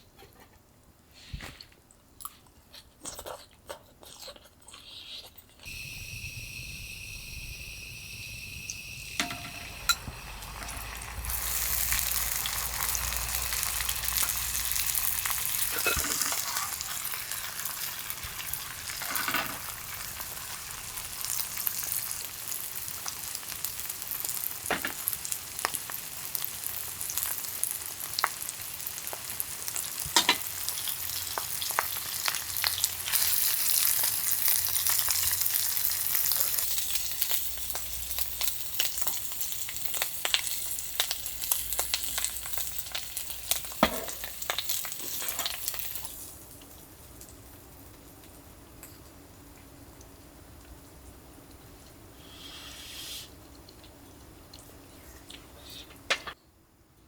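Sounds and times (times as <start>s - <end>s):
food sizzling in a pan: 5.6s - 47.0s, 52.2s - 53.3s.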